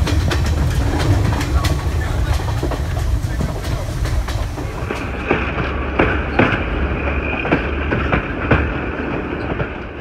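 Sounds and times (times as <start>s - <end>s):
train rumble: 0.0s - 10.0s
wheels clacking over rail joints: 0.0s - 10.0s
high wheel squeal: 4.7s - 9.6s.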